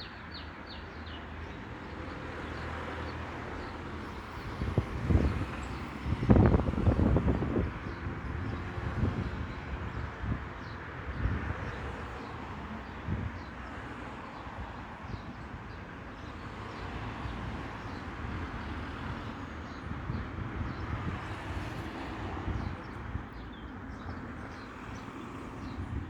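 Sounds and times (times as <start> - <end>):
wind rumble on microphone: 4.0 - 13.5, 14.4 - 15.8, 17.1 - 26.0.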